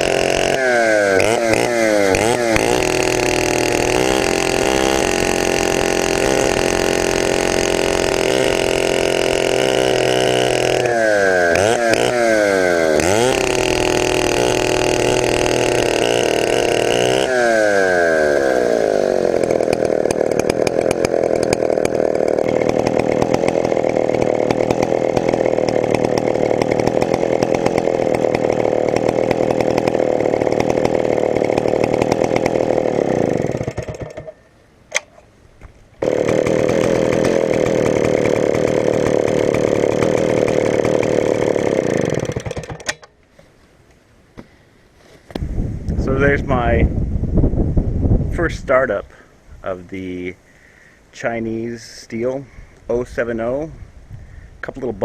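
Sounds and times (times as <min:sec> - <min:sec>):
chainsaw engine revving: 0:00.0 - 0:34.4, 0:36.0 - 0:43.1.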